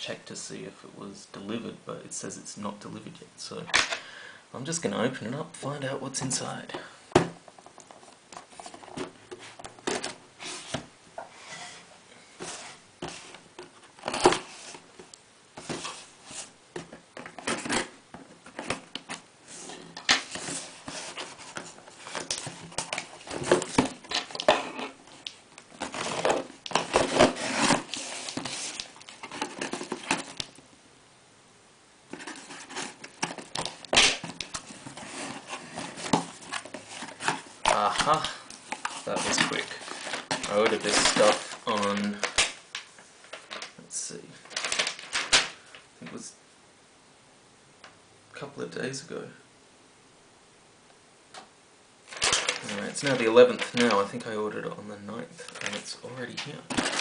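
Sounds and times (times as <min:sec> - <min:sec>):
cardboard and packaging crinkling: 0:07.6 - 0:10.8, 0:15.6 - 0:30.6, 0:32.1 - 0:43.8, 0:44.4 - 0:45.6, 0:52.1 - 0:54.2, 0:55.4 - 0:57.0
packing tape tearing: 0:20.1 - 0:30.5, 0:32.1 - 0:42.6.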